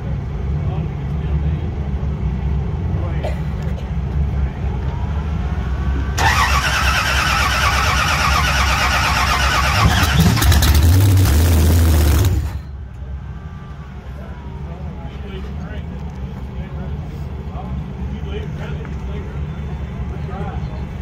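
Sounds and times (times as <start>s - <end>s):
low engine rumble: 0.0s - 21.0s
engine starter cranking: 6.2s - 12.6s.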